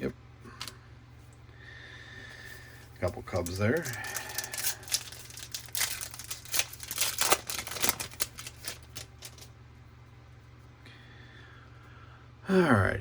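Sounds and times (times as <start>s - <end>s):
faint low hum: 0.0s - 13.0s
trading cards shuffled: 2.7s - 9.5s.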